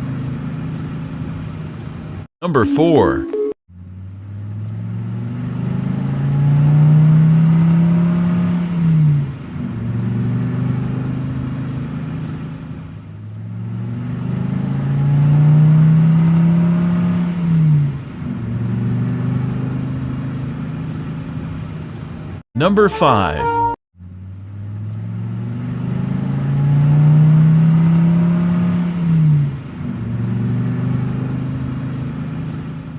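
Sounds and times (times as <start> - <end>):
engine revving with gear change: 4.1 - 12.6, 13.2 - 22.1.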